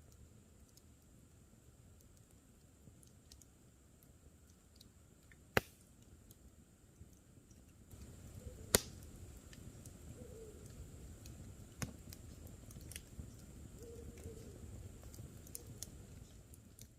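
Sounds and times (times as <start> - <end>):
campfire crackling: 0.0 - 16.9
owl hooting faintly: 8.3 - 8.8, 10.1 - 10.9, 13.8 - 14.8.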